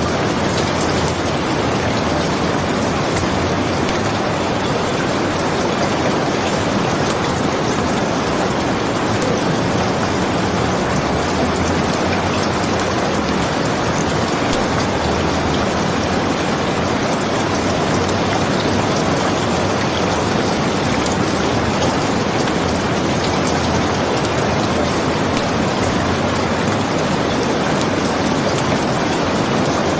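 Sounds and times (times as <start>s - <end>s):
heavy rain hissing: 0.0s - 29.9s.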